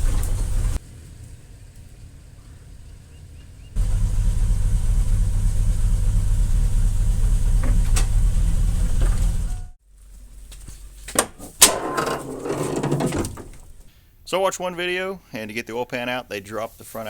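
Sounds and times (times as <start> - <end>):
truck engine droning: 0.0 - 0.8, 3.8 - 9.8.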